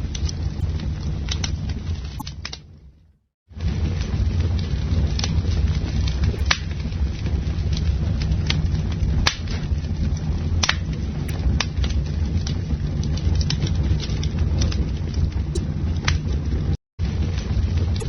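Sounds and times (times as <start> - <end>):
campfire crackling and popping: 3.7 - 16.3.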